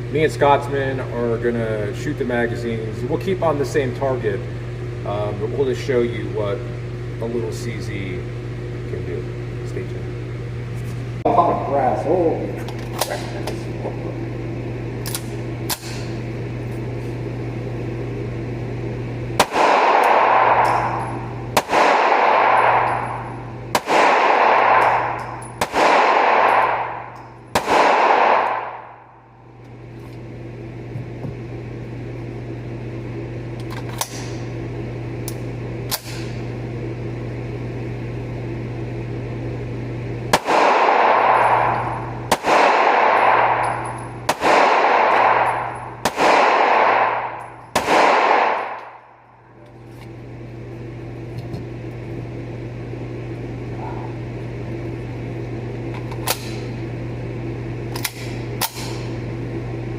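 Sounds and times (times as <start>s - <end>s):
steady low hum: 0.0s - 59.9s
pistol shots with echo: 19.4s - 29.0s, 40.3s - 49.0s.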